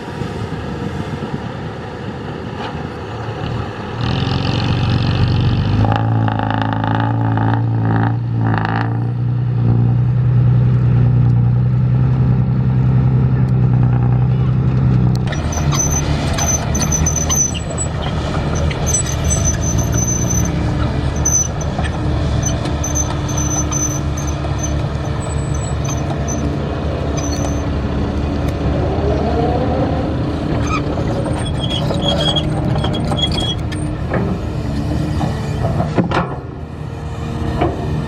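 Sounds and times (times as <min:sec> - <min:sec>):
diesel construction machinery running: 0:00.0 - 0:38.0
high-pitched squeals: 0:15.3 - 0:27.8, 0:30.5 - 0:34.0.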